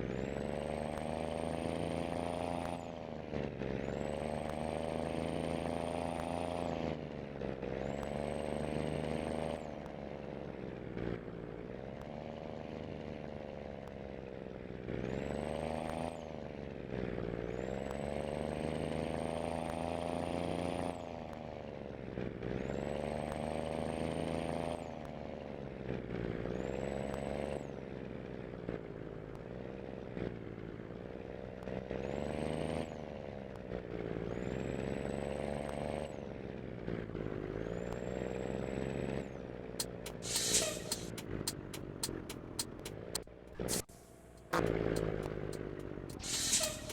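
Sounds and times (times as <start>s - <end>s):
diesel engine pulling under load: 0.0s - 46.9s
high thin whistle: 39.8s - 41.6s, 46.1s - 46.9s.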